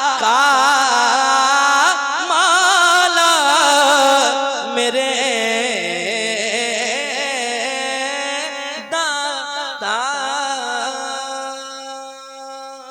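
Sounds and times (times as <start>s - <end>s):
man singing ornamented notes: 0.0s - 12.9s.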